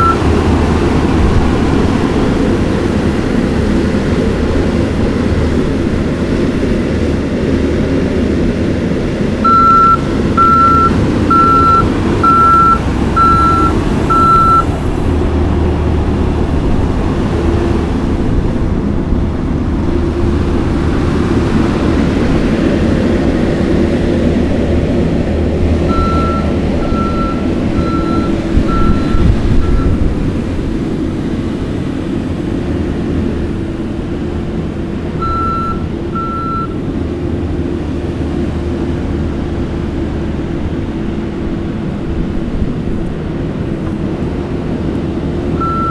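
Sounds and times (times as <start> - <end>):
backup alarm beeping: 0.0 - 0.4, 9.4 - 14.7, 25.9 - 30.0, 35.2 - 36.8, 45.6 - 45.9
diesel engine running: 0.0 - 45.9.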